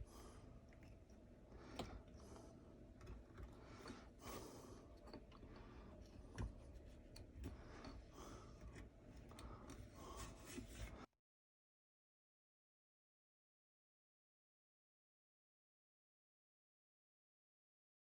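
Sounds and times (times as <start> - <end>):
faint scraping strokes: 6.6 - 11.1.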